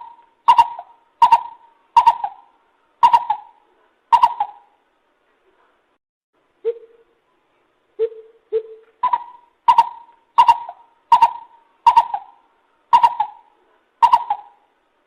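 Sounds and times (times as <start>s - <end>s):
bird hooting call: 0.0s - 4.8s, 8.0s - 14.7s.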